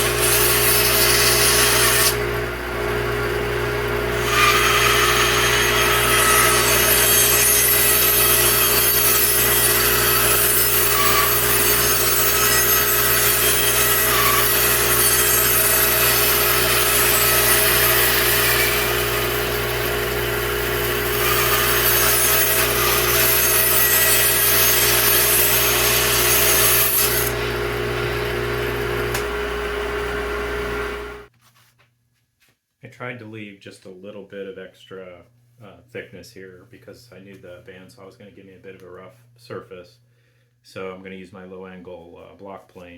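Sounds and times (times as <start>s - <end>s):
saw blade rasping through wood: 0.0s - 2.2s, 4.1s - 27.6s
bandsaw motor hum: 0.0s - 31.3s.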